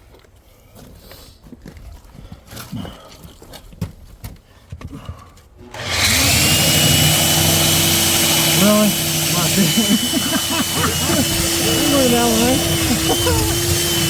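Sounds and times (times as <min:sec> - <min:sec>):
core drill motor whining: 0:05.7 - 0:14.0.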